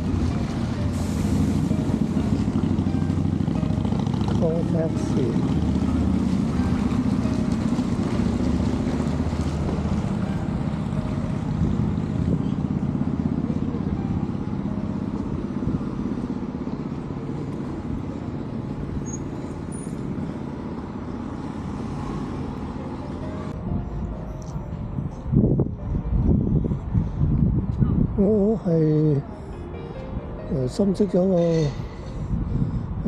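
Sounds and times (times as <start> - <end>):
motor engine running: 0.0 - 21.2.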